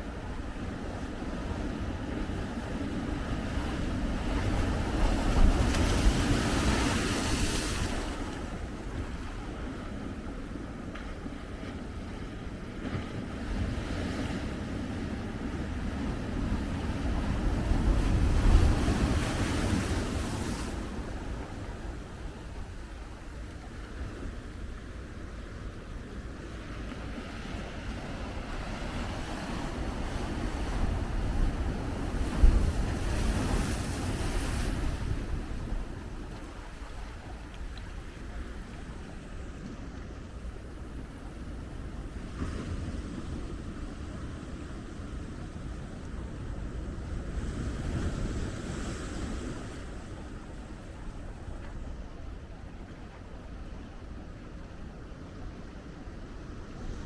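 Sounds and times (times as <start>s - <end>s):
wind buffeting microphone: 0.0s - 53.4s
ocean surf breaking: 1.7s - 10.2s, 11.5s - 45.7s
ocean wave breaking: 3.6s - 8.8s.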